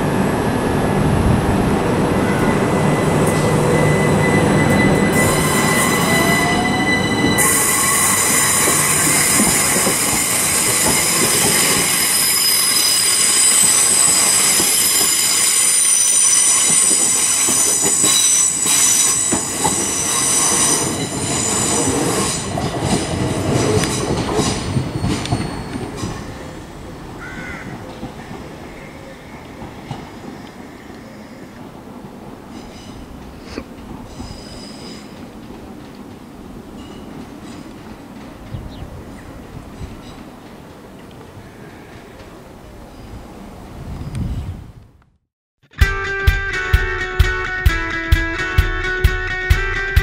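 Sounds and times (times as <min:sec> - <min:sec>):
train wheels squealing: 0:02.2 - 0:26.6, 0:32.5 - 0:33.1, 0:34.1 - 0:35.2.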